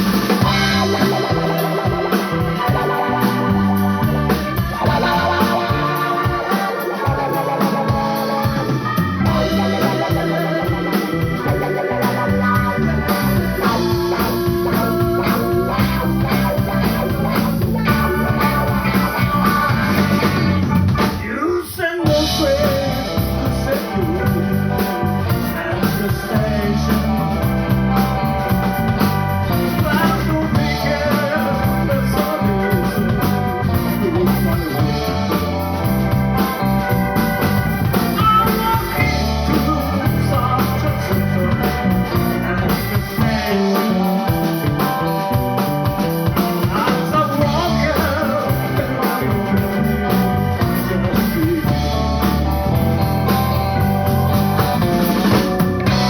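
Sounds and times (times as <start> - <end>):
bass: 0.0 - 56.0
drums: 0.0 - 56.0
electric guitar: 0.0 - 56.0
organ: 0.0 - 56.0.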